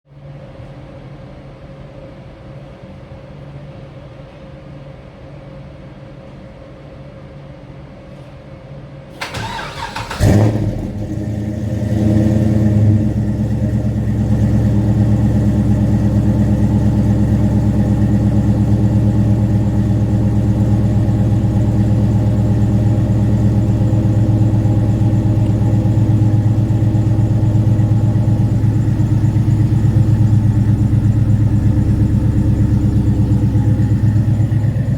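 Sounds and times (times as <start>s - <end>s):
low steady hum: 0.1s - 34.9s
starter motor cranking: 9.2s - 10.5s
car engine starting and idling: 9.2s - 34.9s.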